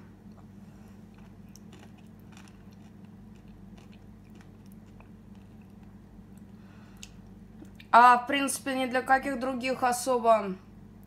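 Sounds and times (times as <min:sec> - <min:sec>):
steady low hum: 0:00.0 - 0:11.0
faint chewing: 0:00.3 - 0:07.9
small crunchy clicks: 0:01.1 - 0:07.9.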